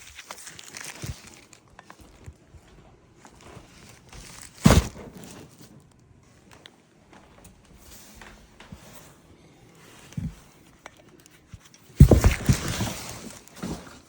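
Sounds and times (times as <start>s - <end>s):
packaging rustling and knocks: 3.2s - 6.0s, 11.6s - 14.0s.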